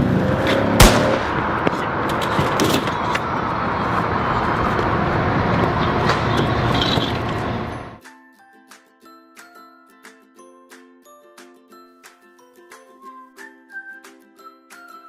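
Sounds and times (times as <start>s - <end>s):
motor vehicle rumble: 0.0s - 8.0s
sharp loud bang: 0.6s - 3.3s.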